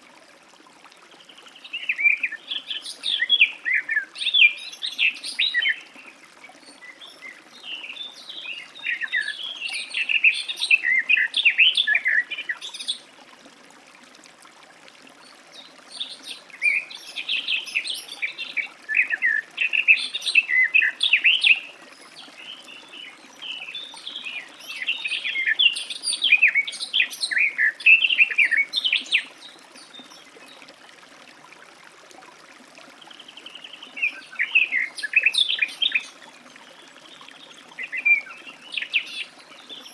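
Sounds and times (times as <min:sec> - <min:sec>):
warbler singing: 0:15.9 - 0:30.5, 0:33.2 - 0:39.9.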